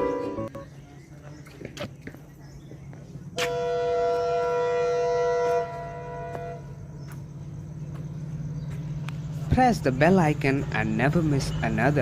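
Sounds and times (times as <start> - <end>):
steady low hum: 0.0 - 12.0
locomotive air horn: 3.4 - 6.9.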